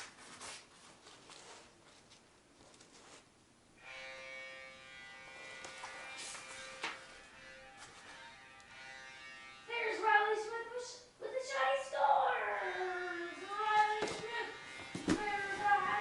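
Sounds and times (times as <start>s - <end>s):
buzzy goal horn: 3.8s - 10.8s, 12.4s - 16.0s.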